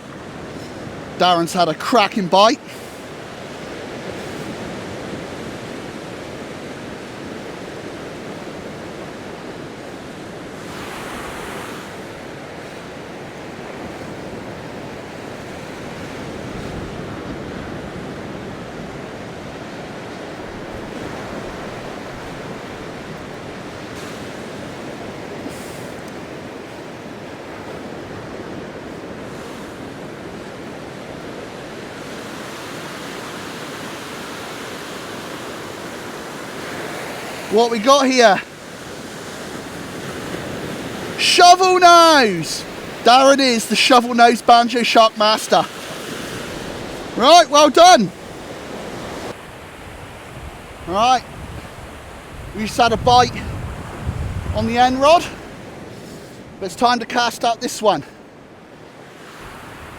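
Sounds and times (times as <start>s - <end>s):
ocean surf on beach: 0.0s - 59.9s
wind on microphone: 15.6s - 19.1s, 48.1s - 55.7s.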